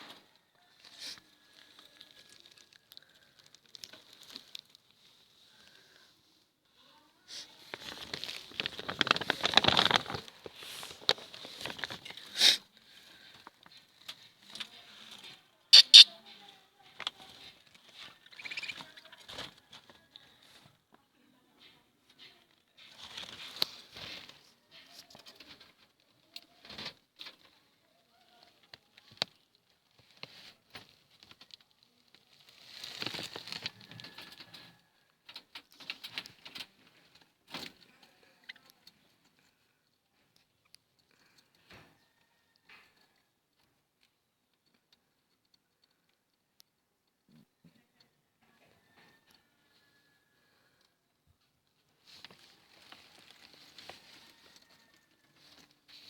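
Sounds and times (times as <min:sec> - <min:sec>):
scratchy rustling and pattering: 0:07.6 - 0:12.3
lovebirds tapping and clicking: 0:15.8 - 0:16.1
shrill bird chirps: 0:15.8 - 0:16.1
lovebirds chattering: 0:15.8 - 0:16.2, 0:18.3 - 0:19.2
birds rustling: 0:17.2 - 0:19.9.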